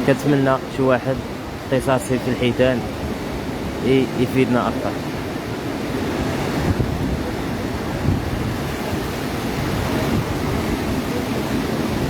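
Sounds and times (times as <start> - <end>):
ocean surf washing ashore: 0.0 - 12.0
wind buffeting microphone: 4.8 - 12.0.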